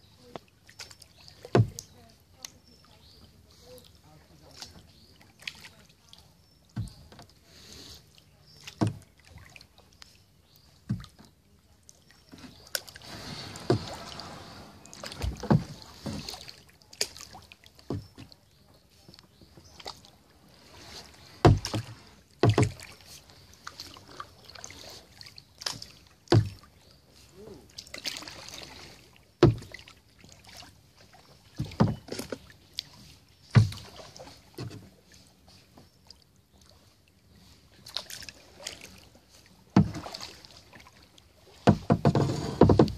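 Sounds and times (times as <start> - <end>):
water rushing and splashing: 0.0 - 10.2, 11.9 - 35.6, 36.8 - 42.9
paddle strokes in water: 0.0 - 42.9
sharp paddle knocks: 21.4 - 22.8.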